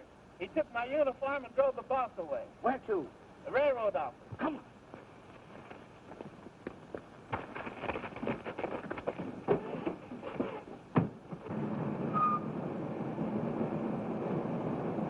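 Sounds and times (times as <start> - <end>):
quick footsteps: 4.3 - 10.8.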